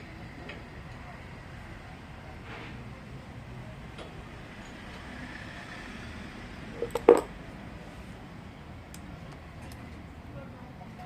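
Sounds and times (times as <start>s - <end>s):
quick metal parts knocks: 6.8s - 7.3s.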